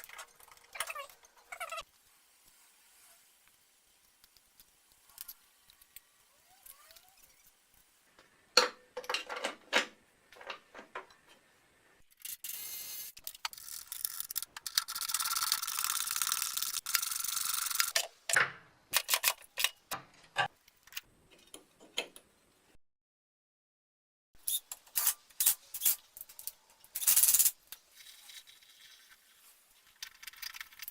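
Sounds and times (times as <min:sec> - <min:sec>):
steady hiss: 0:01.9 - 0:08.4.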